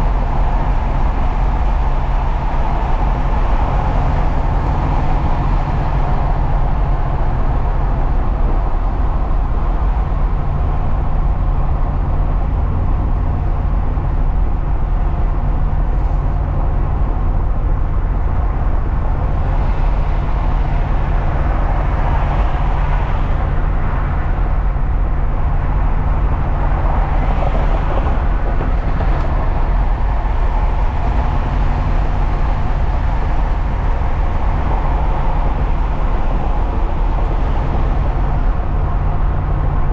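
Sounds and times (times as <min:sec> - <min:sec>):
truck engine humming: 0:00.0 - 0:09.8, 0:18.8 - 0:39.9
road and tyre noise: 0:00.0 - 0:39.9.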